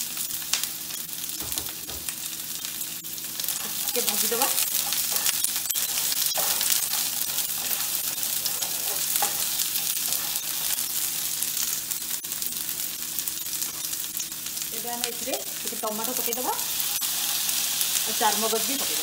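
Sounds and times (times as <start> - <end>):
food sizzling in hot oil: 0.0 - 19.0
spatula scraping pan: 3.4 - 11.0.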